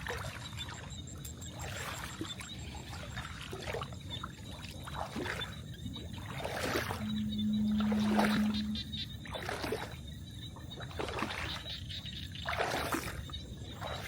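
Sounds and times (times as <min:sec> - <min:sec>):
water splashing and trickling: 0:00.0 - 0:14.0
steady low hum: 0:05.5 - 0:10.2.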